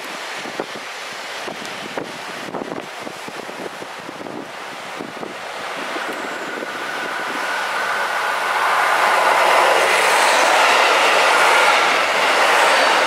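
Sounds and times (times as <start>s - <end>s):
diesel train approaching: 3.1s - 13.0s.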